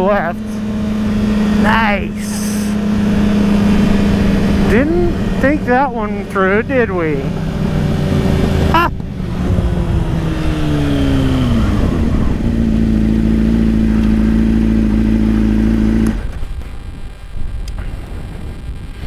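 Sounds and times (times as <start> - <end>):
motorcycle engine: 0.0 - 18.4
wind rush: 7.2 - 13.3, 16.1 - 19.0.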